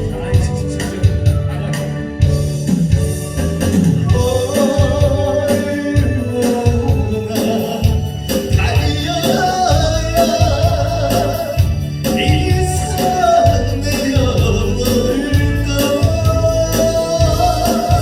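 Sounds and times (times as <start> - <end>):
backing music with steady beat: 0.0 - 18.0
person singing: 3.7 - 18.0.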